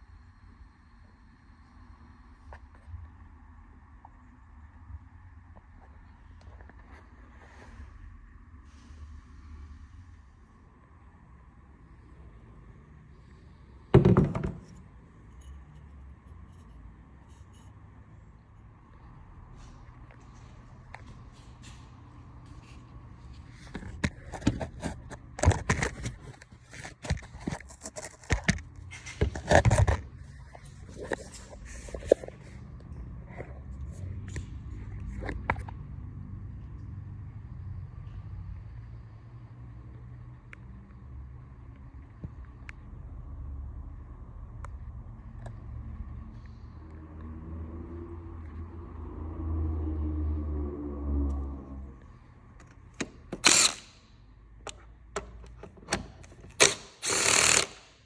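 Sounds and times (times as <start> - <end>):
vehicle rumble: 28.7 - 56.7.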